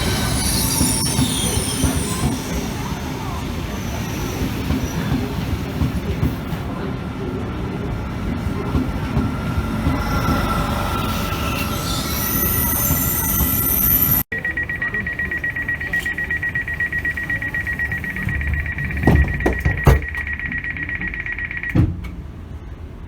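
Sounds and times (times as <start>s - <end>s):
rapid electronic beeping: 0.0s - 3.0s, 8.6s - 21.8s
train wheel squeal: 0.0s - 21.7s
knocks: 18.5s - 20.4s.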